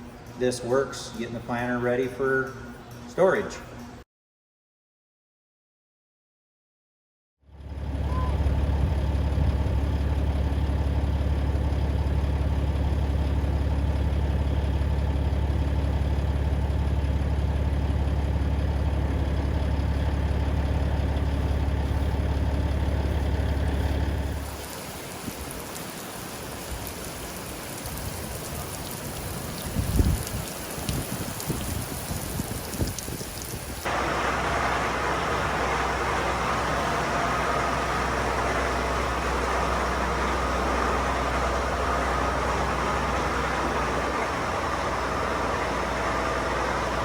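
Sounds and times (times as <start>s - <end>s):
engine idling: 7.5s - 24.7s, 33.8s - 47.0s
heavy rain: 24.2s - 47.0s.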